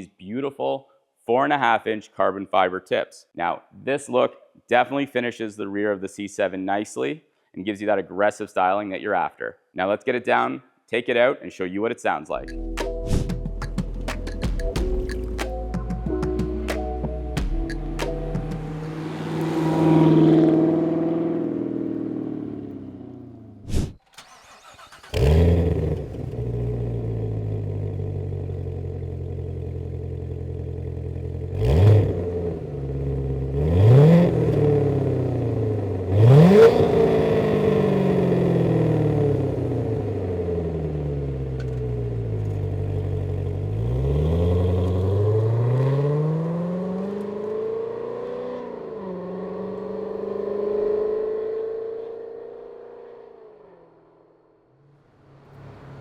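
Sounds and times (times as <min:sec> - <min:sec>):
car engine starting and revving: 0:17.7 - 0:54.2.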